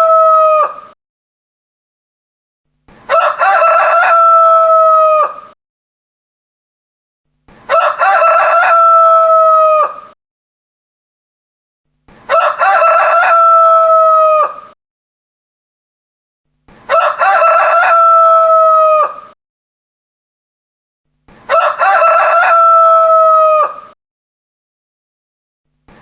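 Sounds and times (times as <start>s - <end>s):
rooster crowing: 0.0s - 0.9s, 3.1s - 5.6s, 7.7s - 10.2s, 12.3s - 14.8s, 16.9s - 19.4s, 21.5s - 24.0s.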